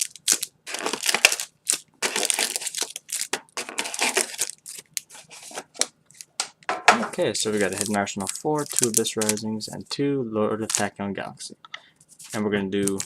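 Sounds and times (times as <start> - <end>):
packaging crinkling and rustling: 0.0 - 6.4, 7.3 - 9.9, 10.6 - 10.9, 12.1 - 13.0.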